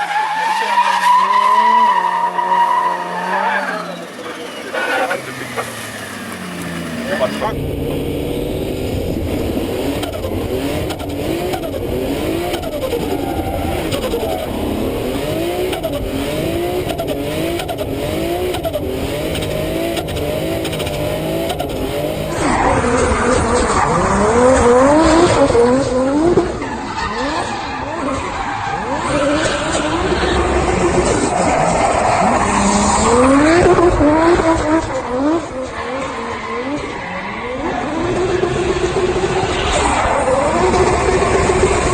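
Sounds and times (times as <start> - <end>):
tyres squealing: 0.0 - 7.6
car engine revving: 0.0 - 41.9.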